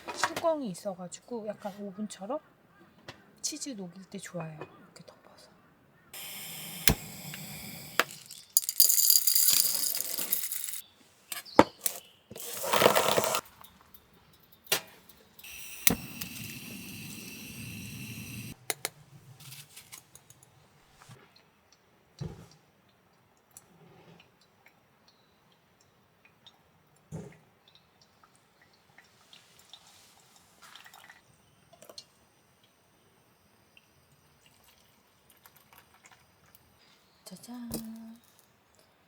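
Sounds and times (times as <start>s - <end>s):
hissing: 6.2s - 10.8s, 15.4s - 18.6s
metal cookware clinking: 7.9s - 10.8s.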